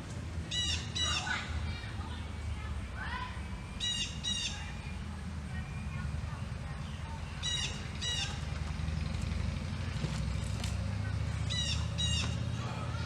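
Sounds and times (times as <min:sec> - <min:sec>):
bird squawking: 0:00.5 - 0:01.6, 0:03.8 - 0:04.9, 0:07.4 - 0:08.5, 0:11.4 - 0:12.4.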